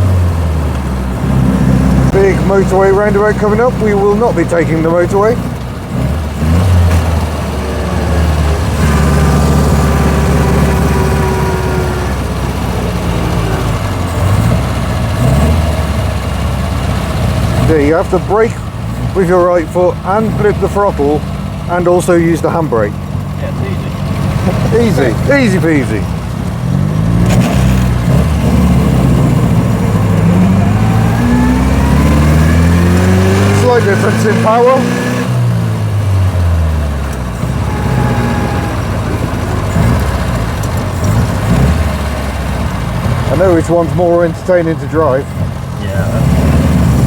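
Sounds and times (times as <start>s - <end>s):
car engine running: 0.0s - 47.0s
gearbox whine: 0.8s - 16.2s, 24.0s - 34.7s, 36.3s - 45.8s.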